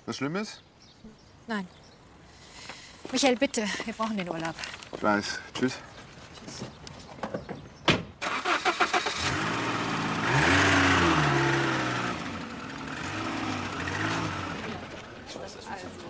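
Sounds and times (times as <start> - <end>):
car engine starting and revving: 8.2 - 15.2.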